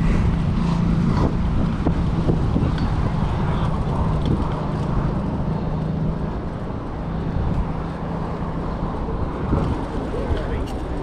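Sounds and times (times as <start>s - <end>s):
road noise: 0.0s - 11.0s
vehicle engines humming: 0.0s - 11.0s.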